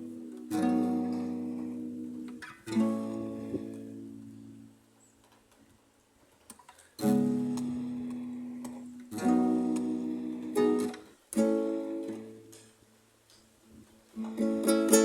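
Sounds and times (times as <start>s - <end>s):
acoustic guitar chords strummed: 0.0s - 4.8s, 7.0s - 12.7s, 14.2s - 15.0s.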